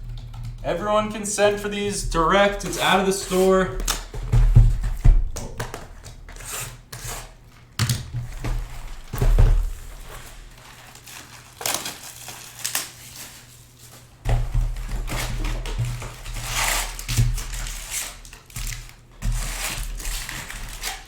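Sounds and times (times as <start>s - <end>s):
card packaging crinkling: 0.6s - 6.1s, 8.6s - 14.0s.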